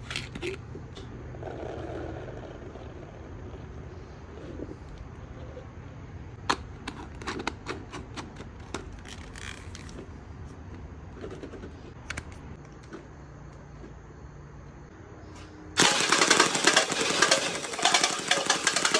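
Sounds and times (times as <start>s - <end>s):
toy blaster automatic fire: 15.8s - 18.9s.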